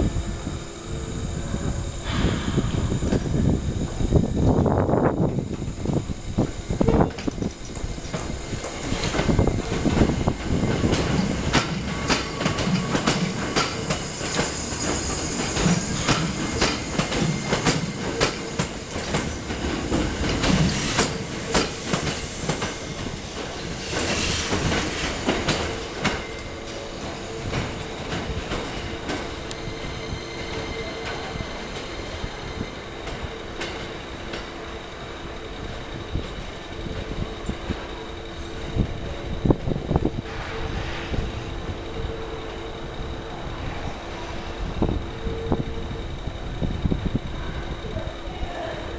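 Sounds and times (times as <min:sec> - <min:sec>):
train wheels clicking over rail joints: 0:01.9 - 0:34.6
high wheel squeal: 0:20.4 - 0:47.9.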